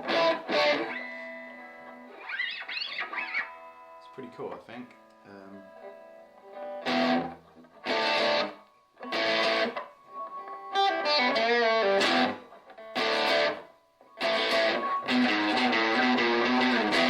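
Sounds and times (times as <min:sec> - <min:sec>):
electric guitar strummed chords: 0:00.0 - 0:04.0, 0:05.6 - 0:17.0
electric guitar single notes: 0:00.0 - 0:17.0.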